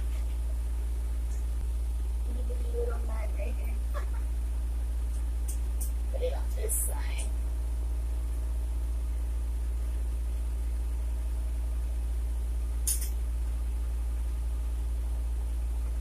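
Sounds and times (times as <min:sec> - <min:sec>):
electric fan humming: 0:00.0 - 0:16.0
high click: 0:12.8 - 0:13.2.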